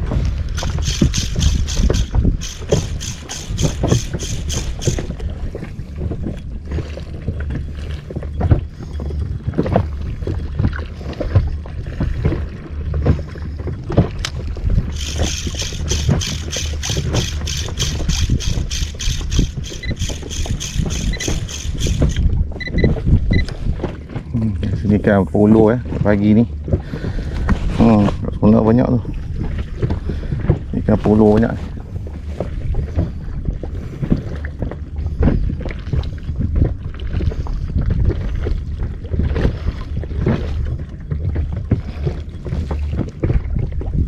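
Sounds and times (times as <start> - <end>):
low rumble of wind and water: 0.0 - 44.0
fishing reel clicking: 0.5 - 5.2, 14.2 - 22.4.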